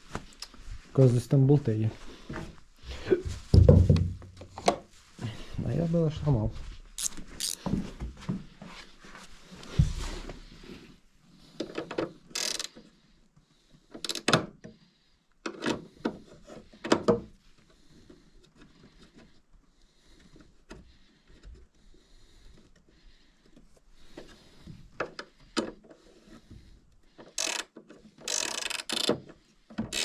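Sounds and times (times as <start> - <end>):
knocks and scrapes from hand work: 3.5 - 4.9.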